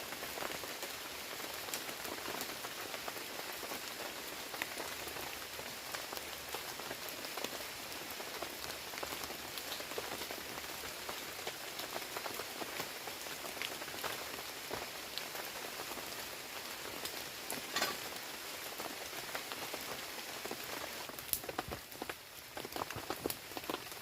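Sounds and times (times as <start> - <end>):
heavy rain: 0.0 - 24.0.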